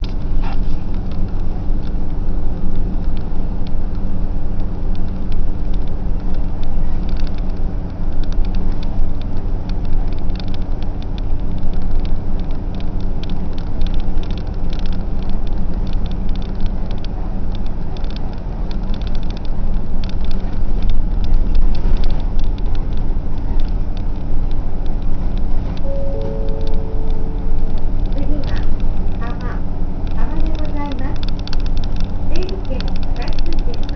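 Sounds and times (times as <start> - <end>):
bus engine and road rumble: 0.0 - 33.9
small rattles: 27.2 - 33.9.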